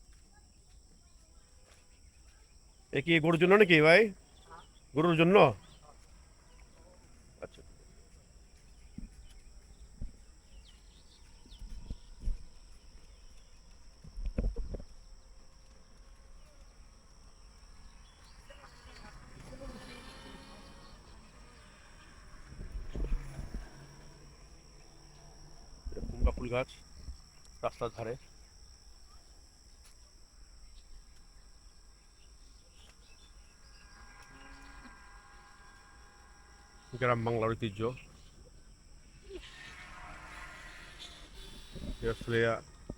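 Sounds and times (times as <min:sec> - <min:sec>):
insects trilling: 0:00.0 - 0:42.9
faint bird chirps: 0:04.2 - 0:14.0, 0:30.6 - 0:42.9
steady high hiss: 0:17.2 - 0:42.9.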